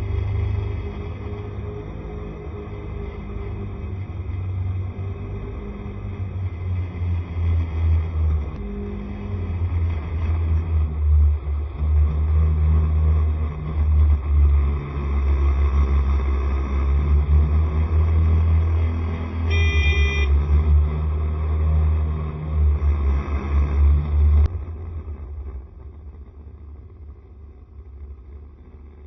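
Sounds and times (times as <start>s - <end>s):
scooter engine: 19.4s - 20.4s
vehicle horn beep: 19.5s - 20.5s.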